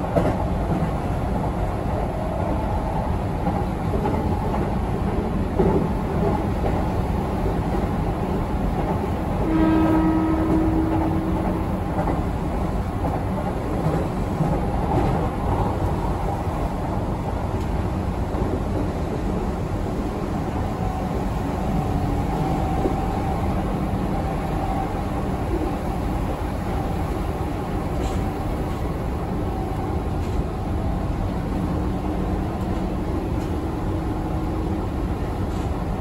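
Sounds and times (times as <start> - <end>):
train wheels rumbling on rail: 0.0 - 36.0
train horn: 9.4 - 11.7.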